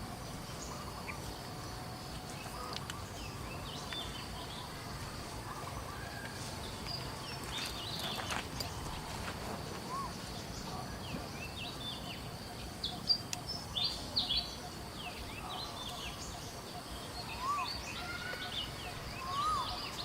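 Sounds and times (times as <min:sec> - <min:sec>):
birds chirping: 0:00.0 - 0:20.0
steady background hiss: 0:00.0 - 0:20.0
whistled bird calls: 0:09.8 - 0:20.0.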